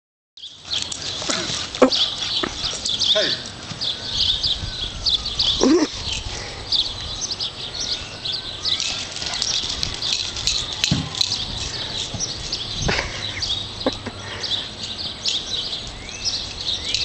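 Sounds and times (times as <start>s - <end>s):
small birds chirping: 0.4s - 17.0s.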